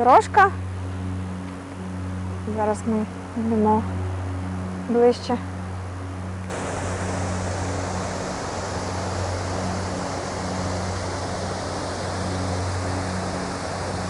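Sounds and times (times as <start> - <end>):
low hum: 0.0 - 14.0
waterfall rushing: 6.5 - 14.0.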